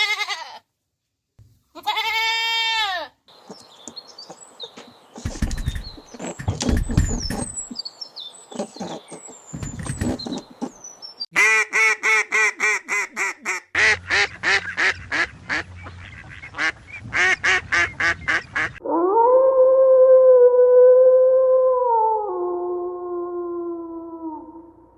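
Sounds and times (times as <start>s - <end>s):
small birds chirping: 3.3s - 11.4s
duck quacking: 11.4s - 18.8s.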